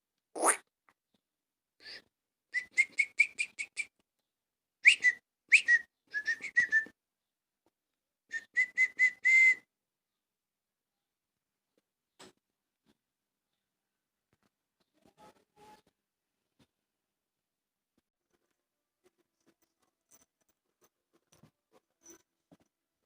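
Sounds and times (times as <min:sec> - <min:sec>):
person making squeaky whistle calls: 0:00.4 - 0:00.6.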